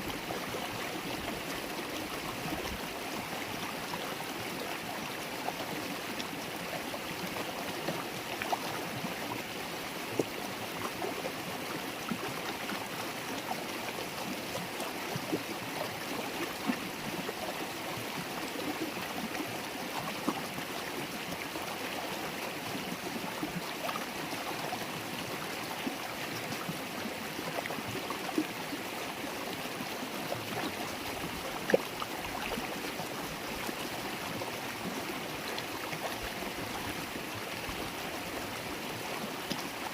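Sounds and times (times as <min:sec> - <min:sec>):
river babbling over stones: 0:00.0 - 0:39.9.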